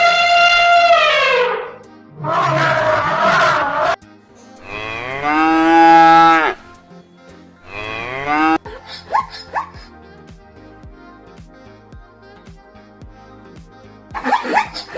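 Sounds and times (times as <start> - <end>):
cow mooing: 0.0 - 4.0, 4.6 - 6.6, 7.7 - 8.6.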